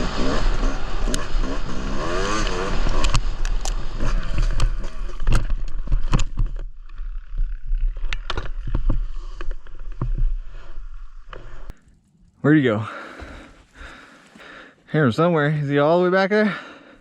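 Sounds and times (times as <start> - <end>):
dirt bike engine running: 0.0 - 11.7.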